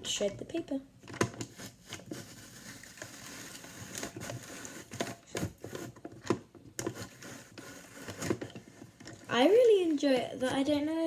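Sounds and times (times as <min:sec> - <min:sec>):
paper being shredded: 0:01.4 - 0:06.0, 0:06.8 - 0:08.5.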